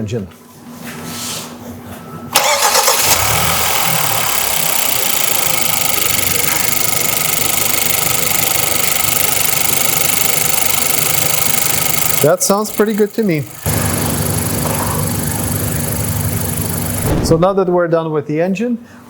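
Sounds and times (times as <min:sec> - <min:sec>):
car engine starting and idling: 0:02.4 - 0:17.6.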